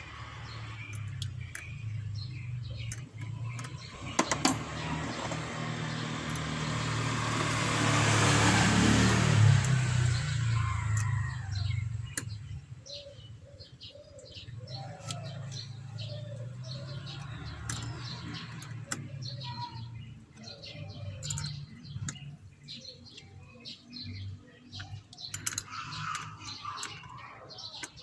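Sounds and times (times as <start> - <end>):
small birds chirping: 0.0 - 28.0
vehicle noise: 0.0 - 28.0
lower curved bird calls: 9.4 - 28.0.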